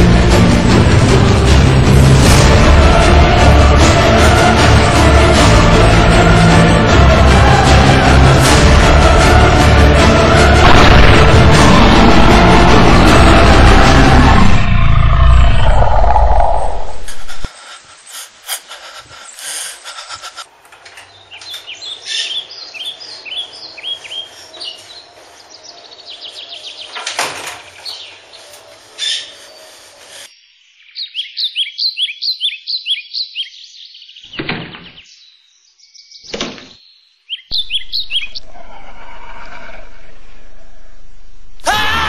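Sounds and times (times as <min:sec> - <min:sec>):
sudden thuds or whooshes: 0:10.4 - 0:14.0
birds chirping: 0:14.6 - 0:39.2.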